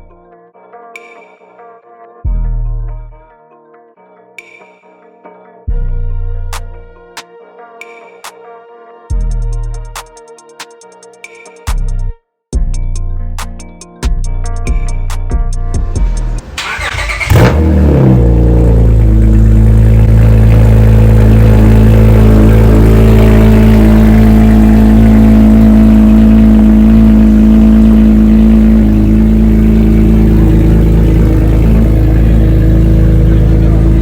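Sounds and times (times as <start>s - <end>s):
music: 0.0s - 18.0s
car engine starting and idling: 15.8s - 34.0s.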